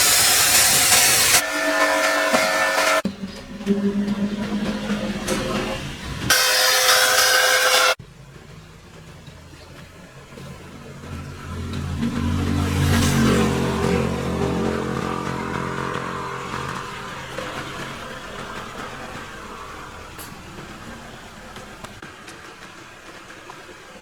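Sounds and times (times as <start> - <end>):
vehicle engine running: 8.0 - 23.9.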